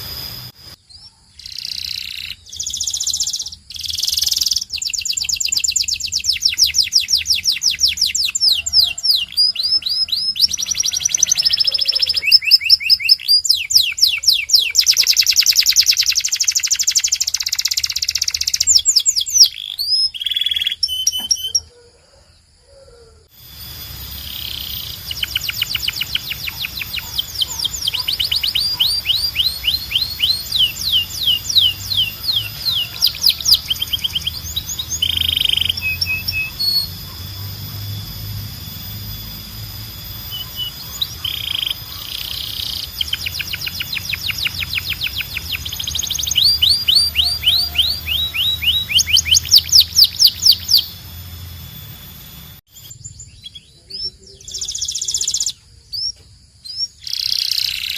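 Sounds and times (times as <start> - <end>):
low steady hum: 0.0 - 0.8
canary singing: 0.0 - 22.2, 22.8 - 57.9.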